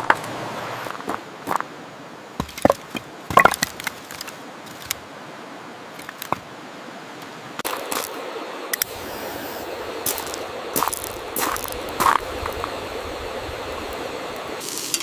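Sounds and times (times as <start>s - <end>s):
rain hissing: 6.2s - 15.0s.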